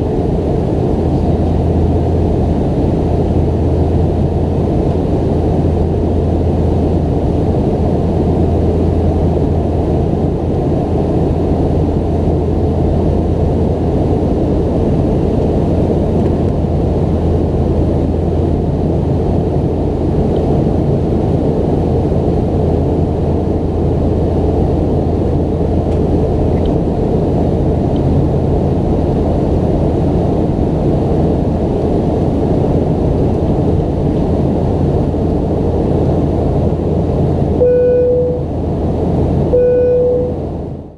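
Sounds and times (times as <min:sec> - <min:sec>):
jet engines droning: 0:00.0 - 0:40.9.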